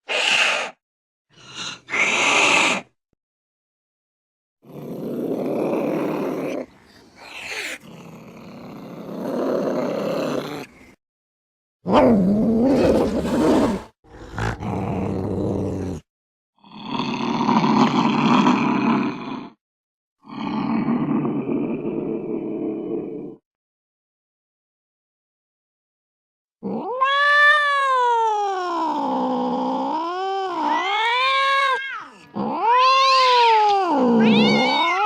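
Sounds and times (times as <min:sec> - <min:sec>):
cats growling and yowling: 0:04.6 - 0:10.7, 0:26.6 - 0:35.0.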